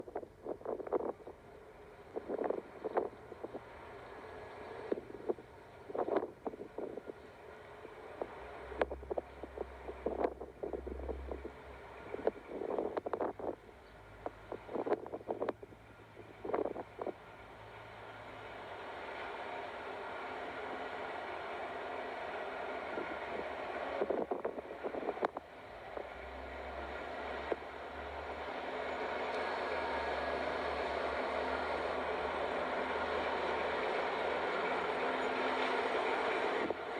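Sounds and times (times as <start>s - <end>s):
wind buffeting microphone: 0.0s - 1.4s, 2.1s - 3.7s, 4.9s - 7.3s, 8.1s - 17.2s, 20.4s - 29.4s
faint diesel engine drone: 0.0s - 36.9s
freight train rumbling past: 0.8s - 36.9s.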